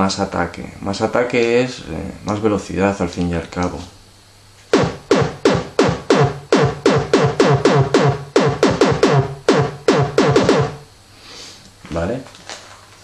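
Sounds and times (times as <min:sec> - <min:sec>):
distorted synth kick drum hits: 0:04.7 - 0:10.9.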